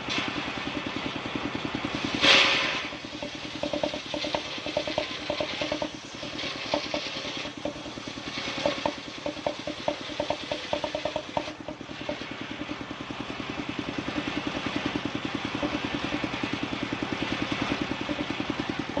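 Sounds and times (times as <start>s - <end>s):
sawing machine engine chugging: 0.0s - 19.0s
light clattering knocks: 3.0s - 12.2s.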